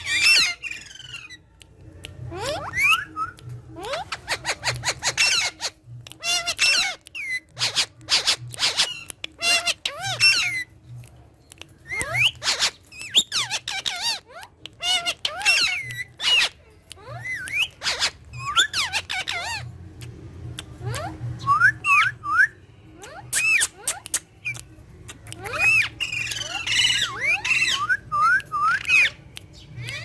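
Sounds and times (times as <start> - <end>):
parrot squawking and chirping: 0.0 - 1.5, 2.3 - 19.9, 20.6 - 30.0.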